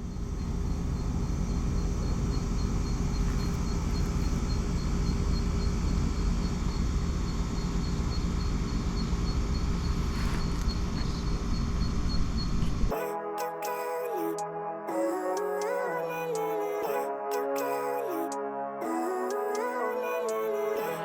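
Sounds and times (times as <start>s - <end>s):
van engine rumble from inside: 0.0s - 12.9s
faint high pulsing chirp: 0.0s - 13.1s.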